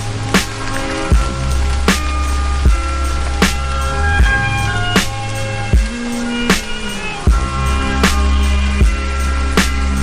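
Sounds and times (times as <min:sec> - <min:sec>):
deep bass line: 0:00.0 - 0:06.6, 0:07.3 - 0:10.0
hip-hop beat: 0:00.0 - 0:10.0
sampled chords: 0:00.0 - 0:10.0
kick drum and snare: 0:01.1 - 0:02.0, 0:02.6 - 0:03.6, 0:05.8 - 0:06.7, 0:07.3 - 0:09.9.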